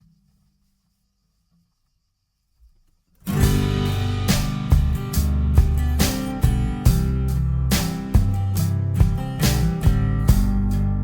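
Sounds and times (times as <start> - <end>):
strummed guitar song: 3.2 - 11.0.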